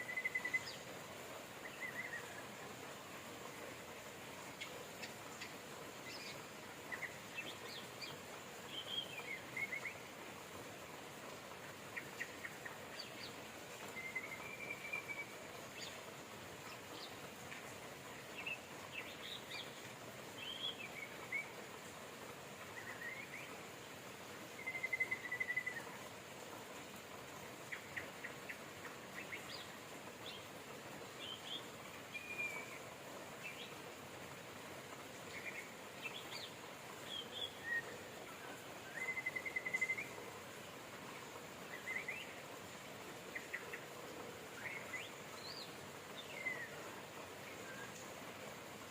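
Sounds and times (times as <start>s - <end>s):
rain hissing: 0.0s - 48.9s
songbirds chirping and whistling: 4.5s - 10.1s, 11.9s - 16.0s, 20.4s - 21.6s, 22.8s - 23.6s, 24.6s - 26.0s, 35.3s - 40.4s.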